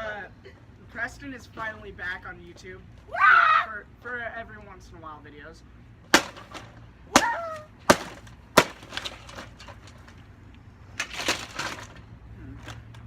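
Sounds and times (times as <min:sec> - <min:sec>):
chopping strikes into a fan: 0:06.1 - 0:09.2
breaking noise: 0:06.1 - 0:10.2, 0:11.0 - 0:12.1
light clattering: 0:07.9 - 0:10.3, 0:10.9 - 0:13.0.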